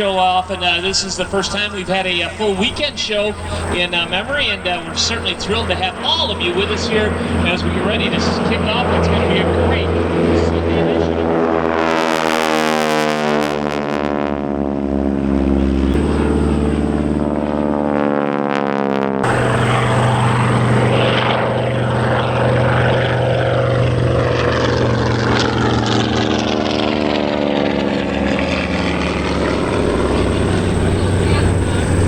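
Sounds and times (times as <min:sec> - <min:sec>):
propeller aircraft engines droning: 0:00.0 - 0:32.0.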